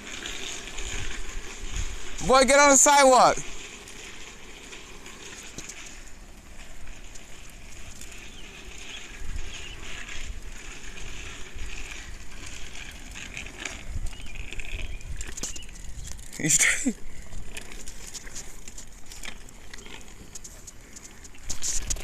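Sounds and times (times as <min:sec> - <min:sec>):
outdoor noise rush: 0:00.0 - 0:22.0
wind buffeting microphone: 0:00.6 - 0:03.7, 0:06.6 - 0:18.2.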